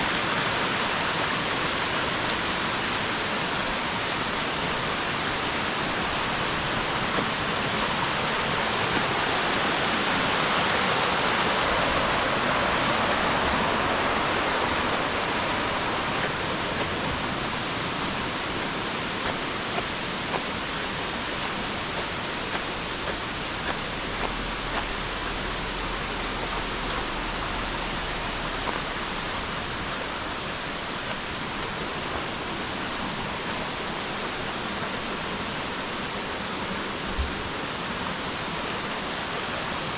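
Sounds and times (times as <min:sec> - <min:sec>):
waterfall roaring: 0:00.0 - 0:39.9
faint high chirp: 0:11.4 - 0:23.8.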